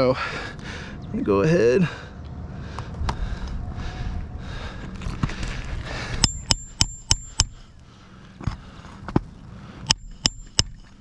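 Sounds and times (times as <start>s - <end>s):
hammer striking nails: 6.2s - 7.6s.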